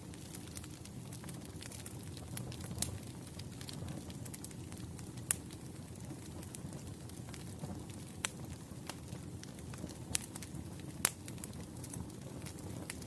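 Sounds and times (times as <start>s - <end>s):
campfire crackling and popping: 0.0s - 13.0s
low rush of flame: 0.0s - 13.0s.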